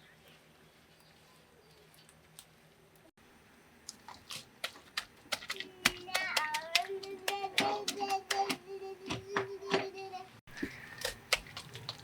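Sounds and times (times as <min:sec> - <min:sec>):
child singing: 0:05.6 - 0:10.4.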